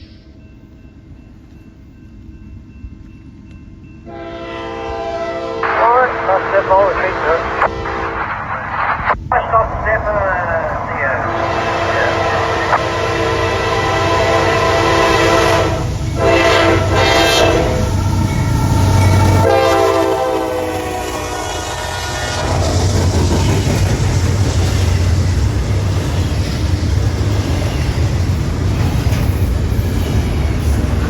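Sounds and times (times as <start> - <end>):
train rumbling on rails: 0.0 - 31.0
locomotive air horn blasts: 4.1 - 8.4, 11.1 - 22.6.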